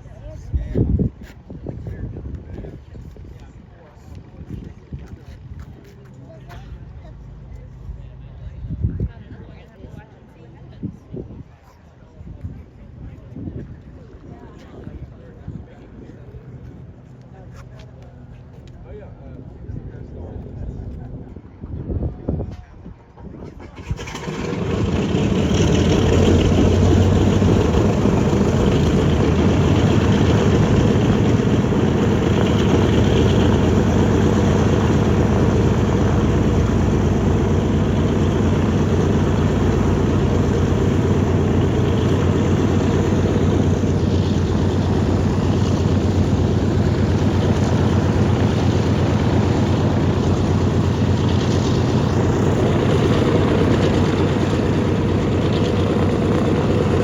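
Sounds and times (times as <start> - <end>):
aircraft piston engines droning: 23.6 - 57.0.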